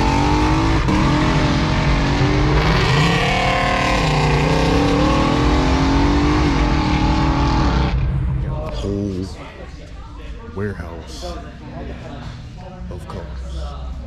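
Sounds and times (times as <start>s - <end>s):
car engine accelerating: 0.0s - 8.8s.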